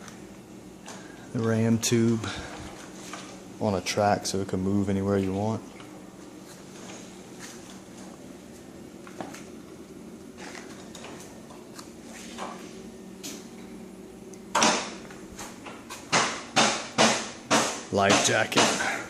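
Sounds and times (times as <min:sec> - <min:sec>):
faint steady hum: 0:00.0 - 0:19.0
loud sharp knock: 0:14.6 - 0:15.0, 0:16.1 - 0:18.9.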